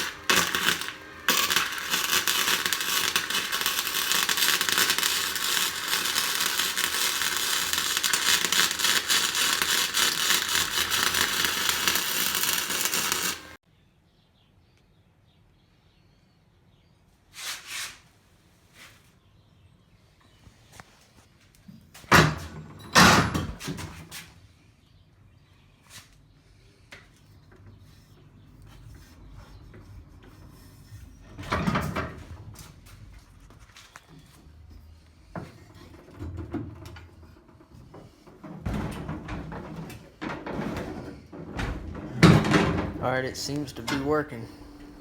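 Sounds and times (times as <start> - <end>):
welding arc crackling: 0.0 - 13.6.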